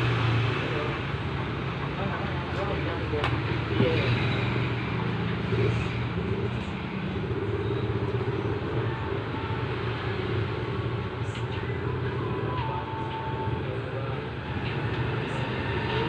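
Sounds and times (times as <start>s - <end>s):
moving vehicle rumble: 0.0s - 16.0s.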